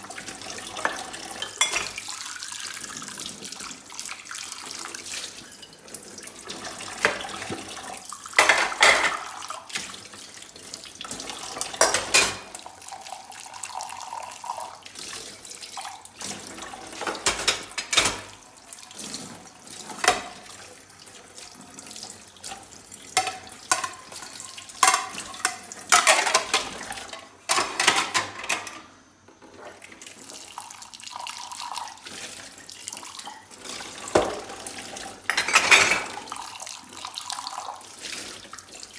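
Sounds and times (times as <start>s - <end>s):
dishes clinking together: 0.8s - 2.0s, 8.4s - 9.3s, 11.7s - 12.6s, 17.0s - 18.4s, 20.0s - 20.4s, 23.2s - 28.9s, 35.3s - 36.2s
tap water splashing into sink: 14.8s - 27.9s, 31.8s - 38.9s.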